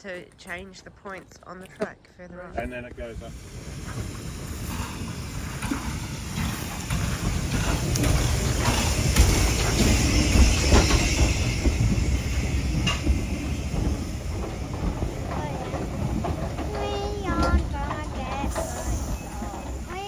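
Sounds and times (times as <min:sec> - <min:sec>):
steam train rumble: 0:02.6 - 0:20.0
steam hiss: 0:03.0 - 0:20.0.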